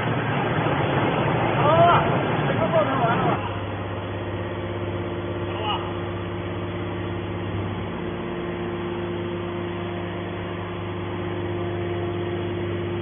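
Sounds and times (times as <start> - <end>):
hydraulic press motor humming: 3.2 - 13.0.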